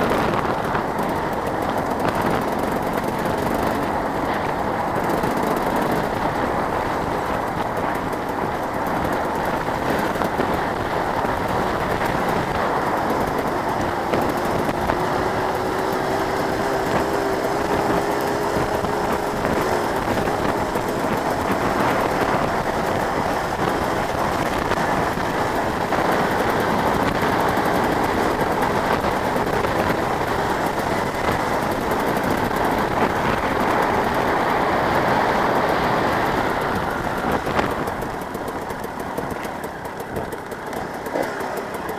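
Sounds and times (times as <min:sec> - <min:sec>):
motocross bike engines: 0:00.0 - 0:41.9.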